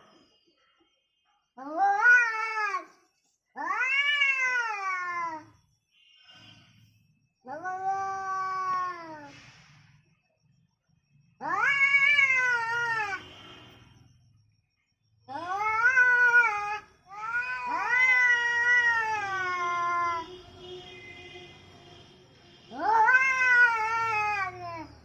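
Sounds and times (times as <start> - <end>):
angry cat yowling: 3.6 - 5.5, 11.4 - 13.2, 15.3 - 20.2, 22.7 - 24.9.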